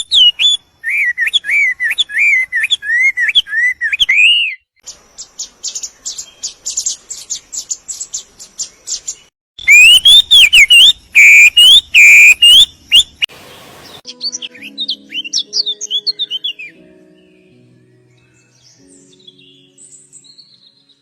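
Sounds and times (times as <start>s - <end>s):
high thin bird chirps: 0.0s - 14.4s
brief hiss: 13.3s - 14.0s.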